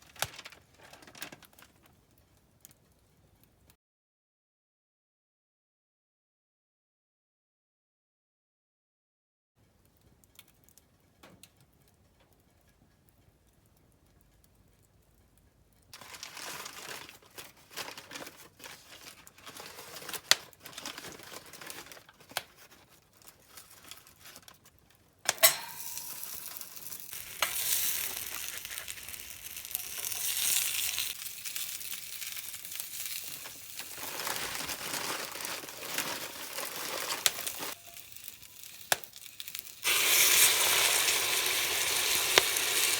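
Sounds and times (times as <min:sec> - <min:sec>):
campfire cooking sizzling: 0:16.0 - 0:42.9.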